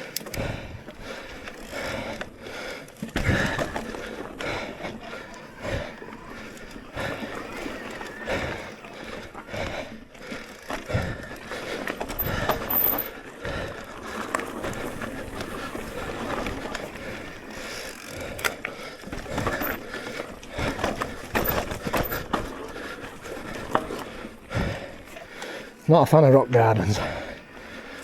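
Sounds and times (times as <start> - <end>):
bike knocks and rattles: 20.6 - 22.6.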